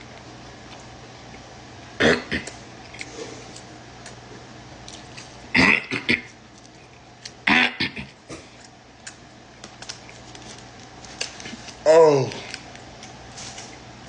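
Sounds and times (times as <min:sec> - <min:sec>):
person eating: 0:00.0 - 0:13.9
cough-like throat noise: 0:02.0 - 0:02.6, 0:05.5 - 0:06.4, 0:07.4 - 0:08.5.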